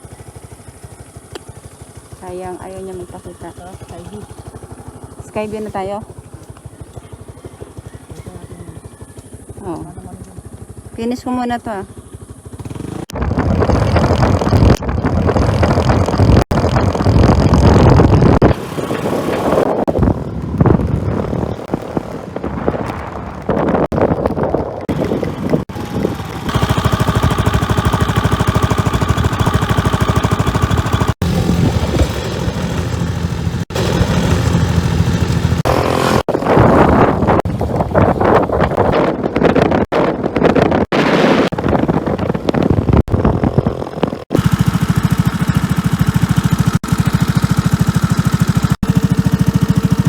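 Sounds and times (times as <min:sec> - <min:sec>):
scooter engine running: 0:00.0 - 0:50.0
wind noise: 0:12.7 - 0:26.8, 0:30.9 - 0:44.4.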